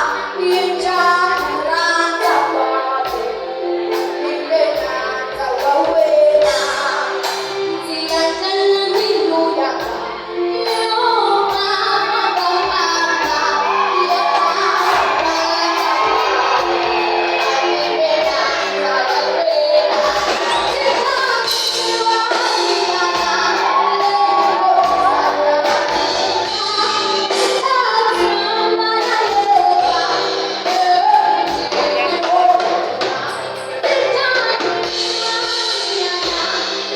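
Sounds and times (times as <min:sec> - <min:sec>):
backing music with a beat: 0:00.0 - 0:36.9
instrumental accompaniment: 0:00.0 - 0:36.9
children and women singing: 0:08.0 - 0:36.9.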